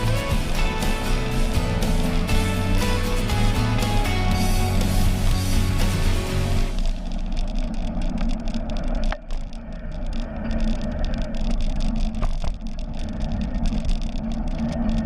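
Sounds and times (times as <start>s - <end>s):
bicycle tyres rolling: 0.0s - 15.0s
faint steady hum: 0.0s - 15.0s
small clicks: 6.7s - 15.0s.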